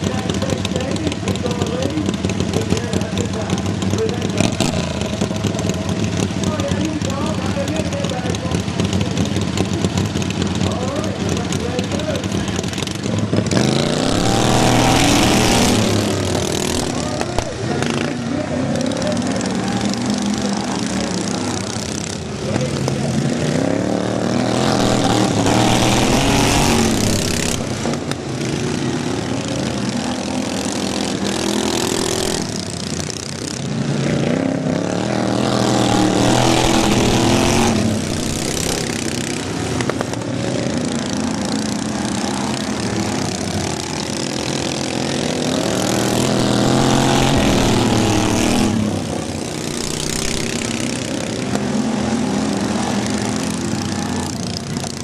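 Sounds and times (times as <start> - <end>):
racing lawn mower engines: 0.0 - 55.0.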